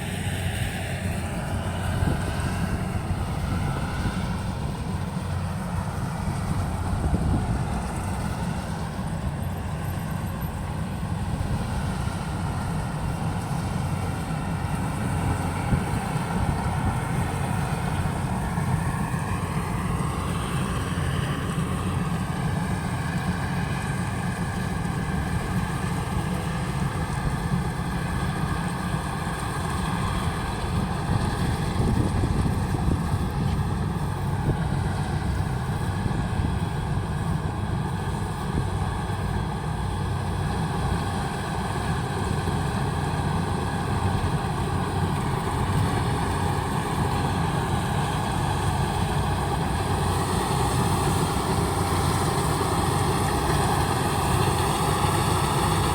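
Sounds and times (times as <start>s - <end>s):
combine harvester engine running: 0.0s - 55.9s.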